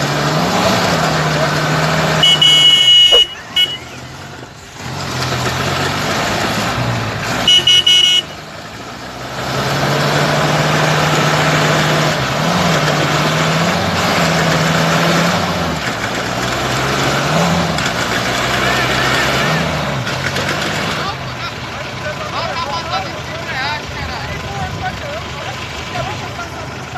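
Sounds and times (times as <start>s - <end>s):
off-road vehicle engine running: 0.0s - 26.9s
vehicle horn blast: 2.2s - 4.1s, 7.4s - 8.4s.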